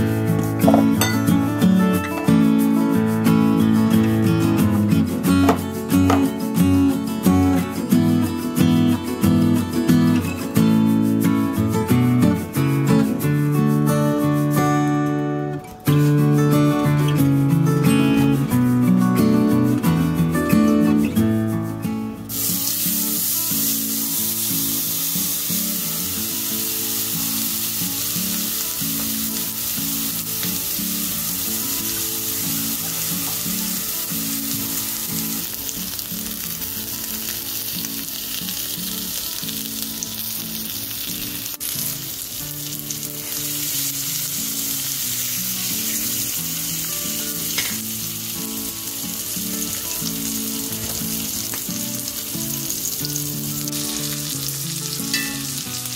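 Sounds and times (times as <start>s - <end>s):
steak sizzling in a skillet: 20.4s - 55.9s.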